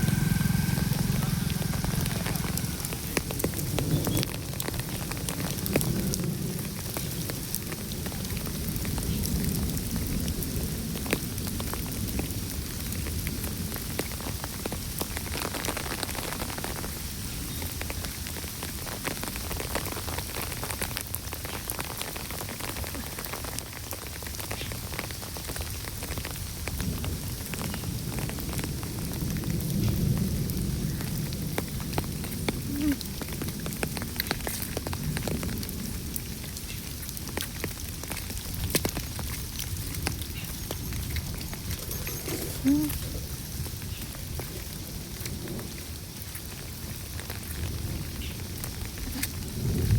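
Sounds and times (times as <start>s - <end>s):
low rumble: 0.0s - 6.3s
raindrop ticks: 0.0s - 49.9s
steady rain falling: 0.0s - 49.9s.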